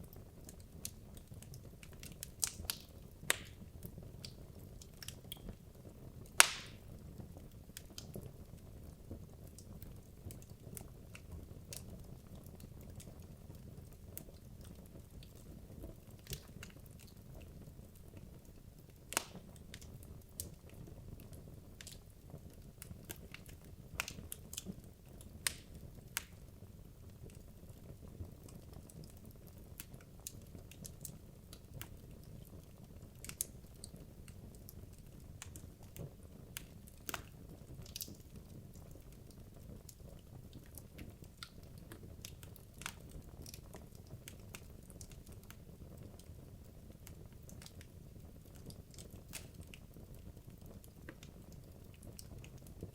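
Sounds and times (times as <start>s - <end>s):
low rumble of fire: 0.0s - 52.9s
wood fire crackling and popping: 0.0s - 52.9s.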